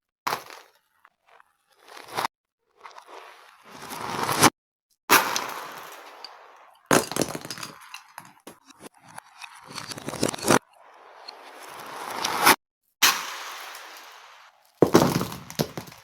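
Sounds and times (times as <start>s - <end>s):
beads clattering backwards: 5.2s - 10.6s.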